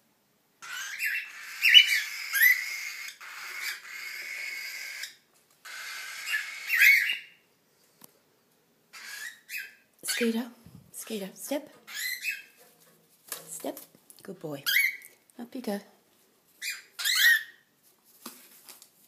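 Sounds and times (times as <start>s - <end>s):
cockatiel chicks begging calls: 0.6s - 7.4s, 8.9s - 10.3s, 11.9s - 12.6s, 16.6s - 17.6s.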